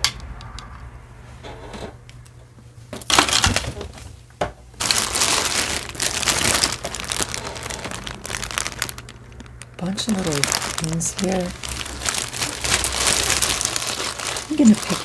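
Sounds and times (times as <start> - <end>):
packaging crinkling: 3.1 - 4.0, 4.8 - 15.0.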